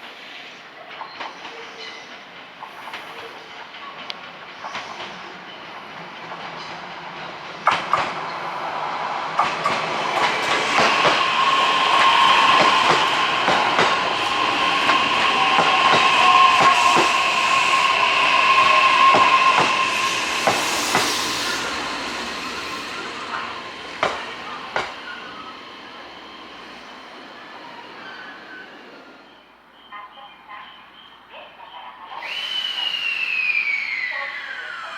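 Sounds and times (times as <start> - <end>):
electric train passing: 2.2 - 34.9
wheels clacking over rail joints: 5.7 - 29.2.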